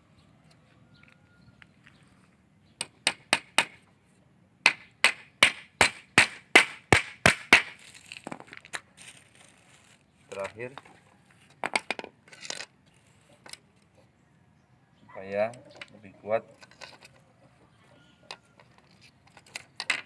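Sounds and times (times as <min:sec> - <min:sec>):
hammer hitting nail into wood: 0:02.8 - 0:03.8, 0:04.7 - 0:07.8.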